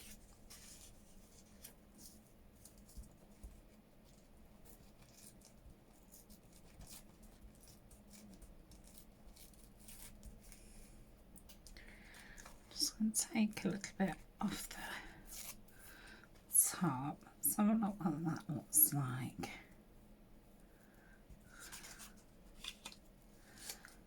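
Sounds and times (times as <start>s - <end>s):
paper rustling and tapping: 0.0s - 10.6s, 21.5s - 24.0s.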